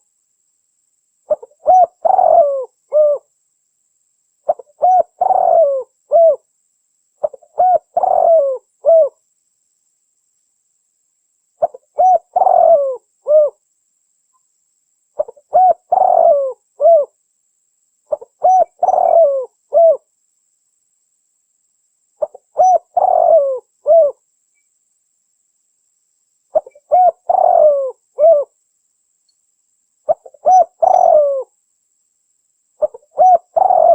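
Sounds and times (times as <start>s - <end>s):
dove cooing: 1.3s - 3.3s, 4.5s - 6.4s, 7.2s - 9.2s, 11.6s - 13.6s, 15.2s - 17.2s, 18.1s - 20.1s, 22.2s - 24.2s, 26.5s - 28.5s, 30.1s - 31.5s, 32.8s - 33.9s.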